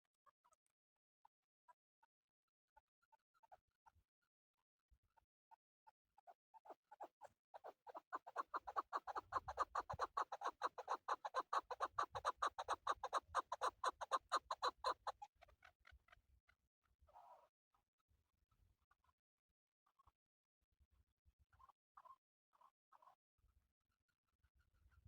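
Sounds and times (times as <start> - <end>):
partridge clucking call: 7.6 - 15.3.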